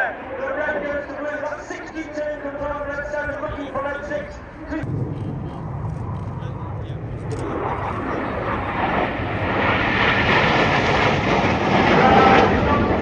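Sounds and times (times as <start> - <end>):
jet making a fast pass: 4.8 - 13.0.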